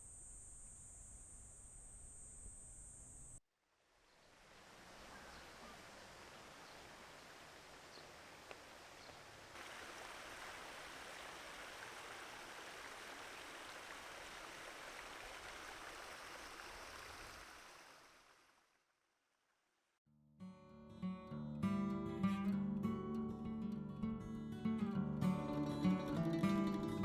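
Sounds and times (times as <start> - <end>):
stream water rushing: 4.3 - 18.4
acoustic guitar music: 20.4 - 27.0.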